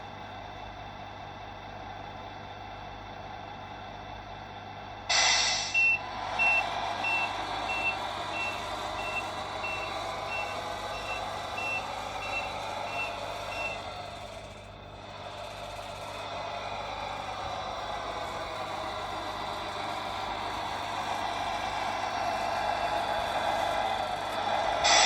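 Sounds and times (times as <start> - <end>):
simulated truck engine running: 0.0 - 25.0
air brake hiss: 5.1 - 8.6
reversing beeps: 5.6 - 13.8.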